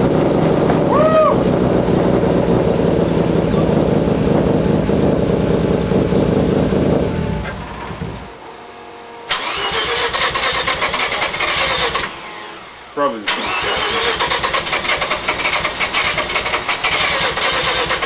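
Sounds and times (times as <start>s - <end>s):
rotary engine running: 0.0s - 8.2s, 9.3s - 12.2s, 13.3s - 18.0s
whining engine starter: 9.3s - 12.6s, 13.2s - 18.0s.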